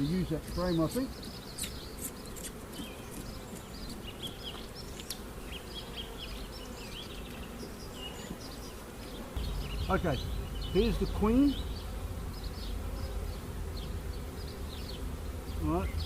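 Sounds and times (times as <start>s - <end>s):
bees buzzing: 0.0s - 16.0s.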